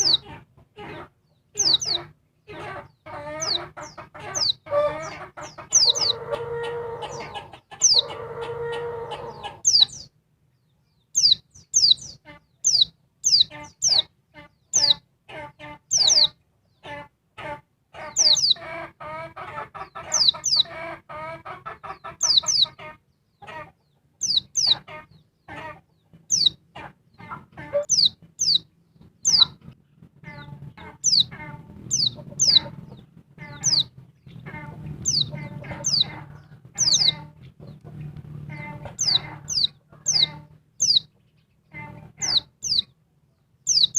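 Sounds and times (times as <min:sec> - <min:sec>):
bird harsh clucking notes: 0:00.0 - 0:10.1, 0:11.2 - 0:43.0, 0:43.7 - 0:43.9
faint low hum: 0:26.1 - 0:43.9.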